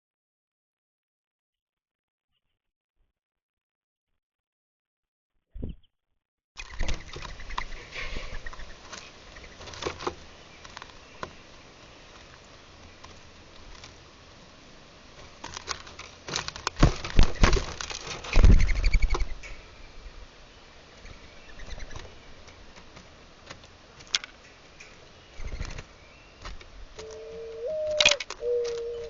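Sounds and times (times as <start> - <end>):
rustling: 6.6 - 19.7
dove cooing: 27.0 - 29.0.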